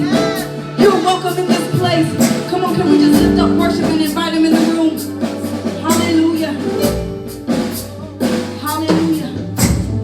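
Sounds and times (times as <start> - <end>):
people singing: 0.0 - 1.3, 4.6 - 8.7
drums: 0.0 - 10.0.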